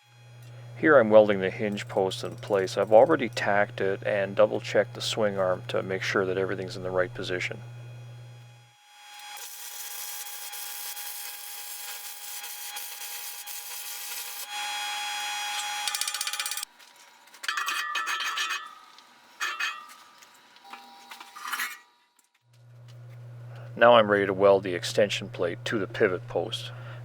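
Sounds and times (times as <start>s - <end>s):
electric arc welder welding: 0.0s - 17.6s.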